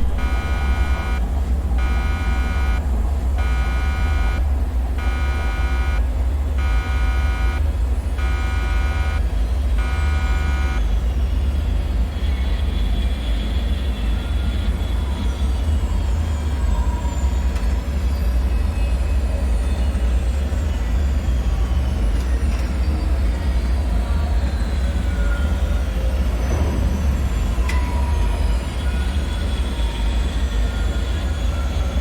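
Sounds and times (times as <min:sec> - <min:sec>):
pulsing buzzing alarm: 0:00.0 - 0:11.2
deep rumble: 0:00.0 - 0:11.6.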